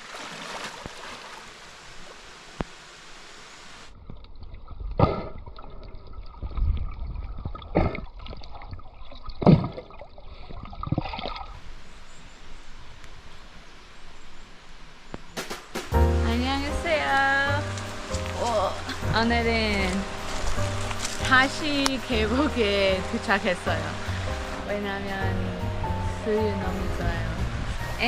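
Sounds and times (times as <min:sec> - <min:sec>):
water sloshing splashes: 0:00.0 - 0:02.2
stream water flowing: 0:00.0 - 0:04.8, 0:05.5 - 0:13.9, 0:16.5 - 0:28.0.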